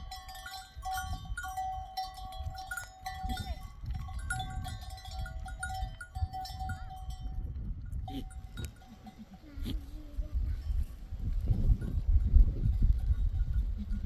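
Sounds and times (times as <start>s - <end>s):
animal bells clinking: 0.0s - 9.7s, 10.6s - 14.0s
sheep bleat: 8.1s - 10.3s.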